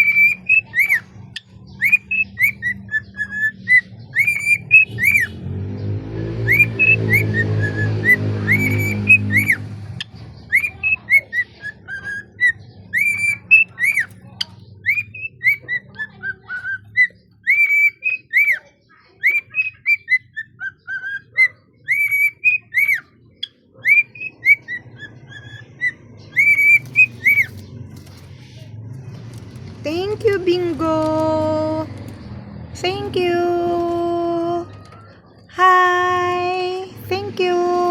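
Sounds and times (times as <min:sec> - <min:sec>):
cockatiel whistling song: 0:00.0 - 0:01.1, 0:01.8 - 0:05.3, 0:06.3 - 0:09.6, 0:10.5 - 0:14.1, 0:14.8 - 0:27.6.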